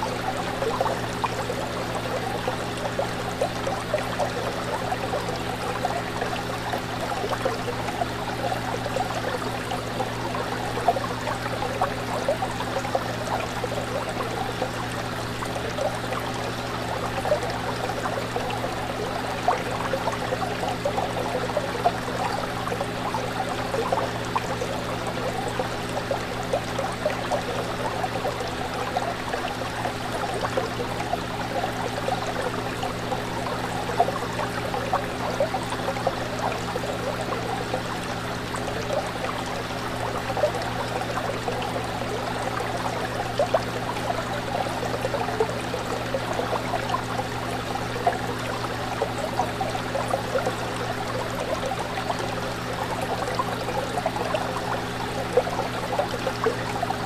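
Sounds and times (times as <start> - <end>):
fish tank water bubbling: 0.0 - 57.0.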